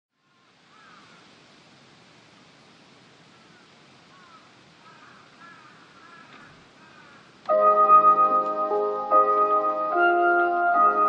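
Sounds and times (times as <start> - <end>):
faint birds chirping: 0.2 - 1.8, 3.2 - 7.4
steady background hiss: 0.2 - 11.0.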